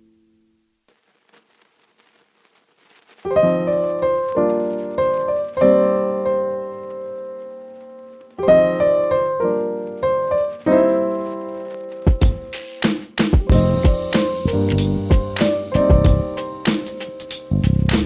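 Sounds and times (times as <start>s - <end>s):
slow piano chords: 3.3s - 12.6s, 13.4s - 18.0s.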